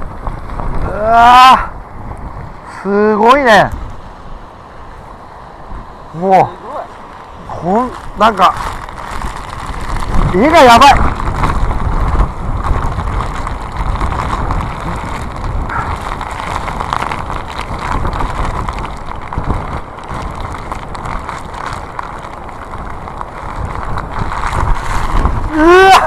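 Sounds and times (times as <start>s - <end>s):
wind blasting microphone: 0.0s - 26.0s.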